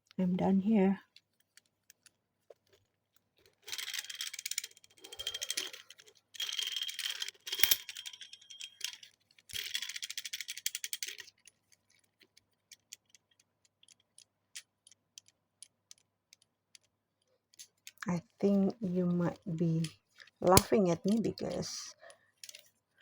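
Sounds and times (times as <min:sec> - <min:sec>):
fast rattling clicks: 0:03.5 - 0:18.0.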